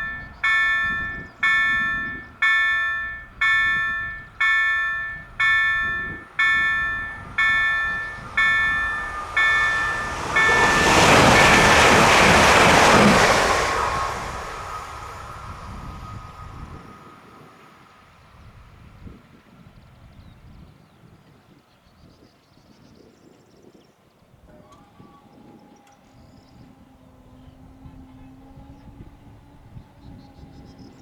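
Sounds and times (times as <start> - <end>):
level crossing warning bell: 0.0 - 17.9
electric train passing: 0.0 - 19.8, 24.4 - 31.0.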